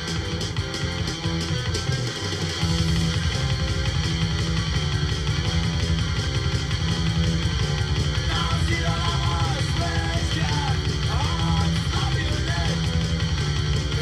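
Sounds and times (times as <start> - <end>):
rock band playing: 0.0 - 14.0
person singing: 8.2 - 13.1.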